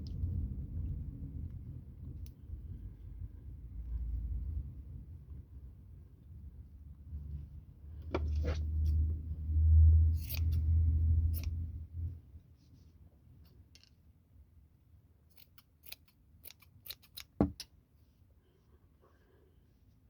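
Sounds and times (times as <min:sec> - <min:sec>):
scissors snipping yarn: 0:10.2 - 0:11.6, 0:15.3 - 0:17.7.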